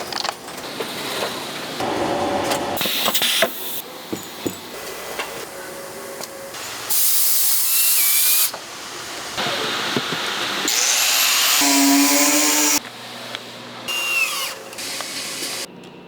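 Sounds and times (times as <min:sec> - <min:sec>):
factory machine noise: 0:00.0 - 0:15.8
loud machine hiss: 0:01.8 - 0:03.9, 0:04.8 - 0:12.8
electric motor whine: 0:10.0 - 0:12.8.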